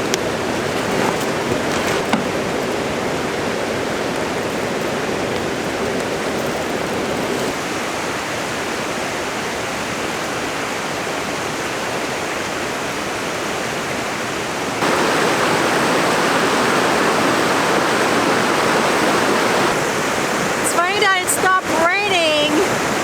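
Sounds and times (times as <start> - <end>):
rain falling: 0.0 - 8.7, 14.8 - 23.0.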